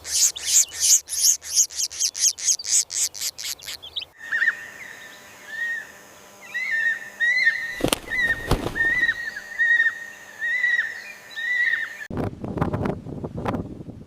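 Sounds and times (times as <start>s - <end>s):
harsh raspy bird calls: 0.0s - 4.6s, 7.4s - 9.9s.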